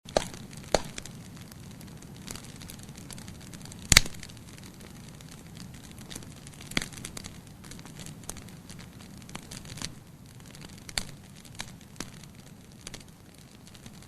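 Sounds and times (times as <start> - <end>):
burning wood popping: 0.0 - 14.0
low fire rumble: 0.0 - 14.0.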